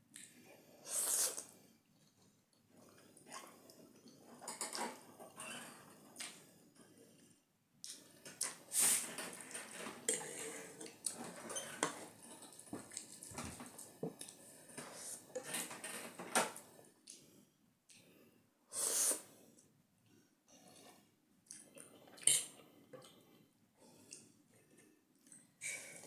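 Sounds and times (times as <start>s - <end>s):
person slurping noodles: 0.9s - 1.5s.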